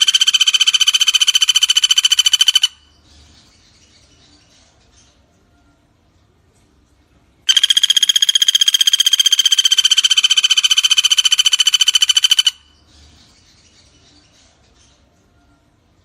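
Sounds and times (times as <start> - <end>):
woodpecker trill: 0.0 - 5.2, 7.5 - 15.0.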